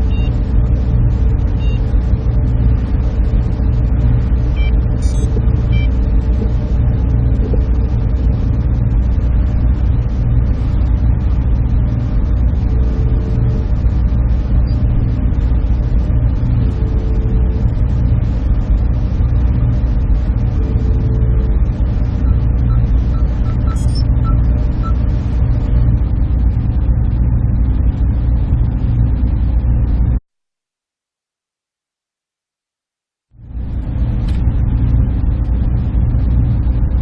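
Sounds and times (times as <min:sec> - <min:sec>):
server machinery drone: 0:00.0 - 0:30.2, 0:33.4 - 0:37.0
faint short tones: 0:22.2 - 0:25.0.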